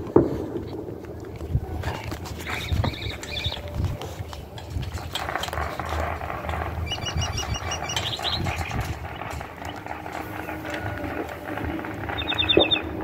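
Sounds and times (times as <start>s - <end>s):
low rumbling: 0.0s - 13.0s
bird chirping: 2.2s - 13.0s
scattered knocks: 4.7s - 13.0s.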